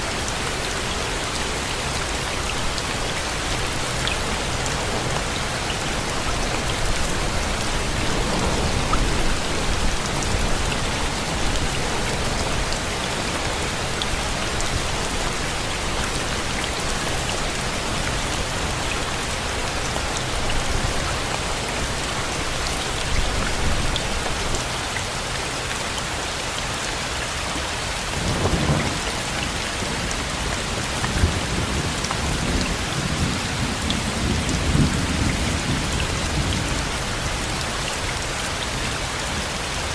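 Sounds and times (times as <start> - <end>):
steady rain hissing: 0.0 - 39.9
low rumbles of thunder: 3.3 - 12.8, 28.1 - 37.3.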